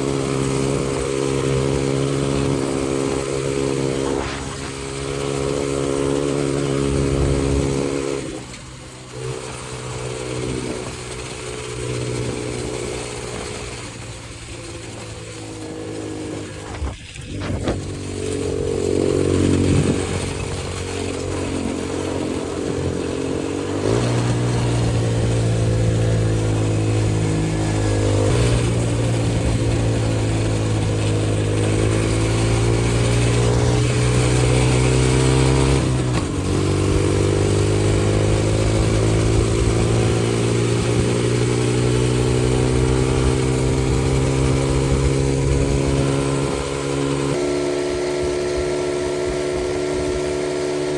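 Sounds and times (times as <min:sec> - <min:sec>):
dirt bike engine running: 0:00.0 - 0:50.9.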